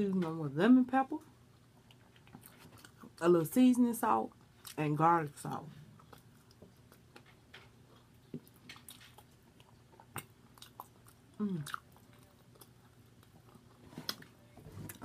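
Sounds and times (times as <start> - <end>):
chewing with wet mouth clicks: 1.6 - 3.2, 5.5 - 14.3
person humming: 11.4 - 11.7.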